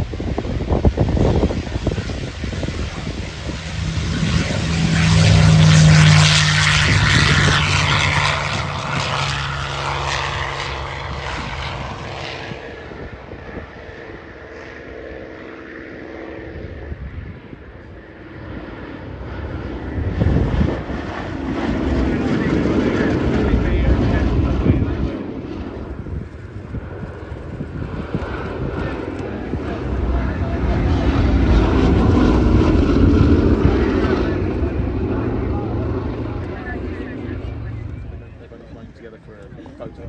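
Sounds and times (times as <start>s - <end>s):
propeller aircraft engine drone: 0.0s - 40.0s.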